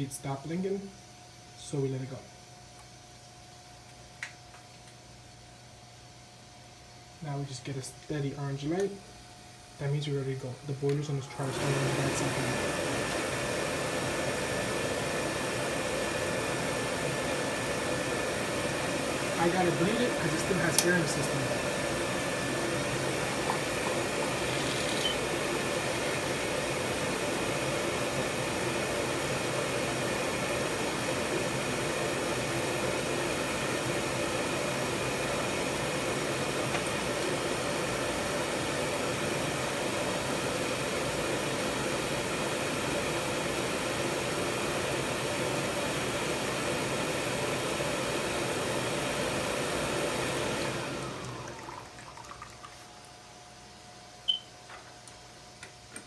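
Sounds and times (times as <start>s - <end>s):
oil burner blower whooshing: 11.2s - 51.5s.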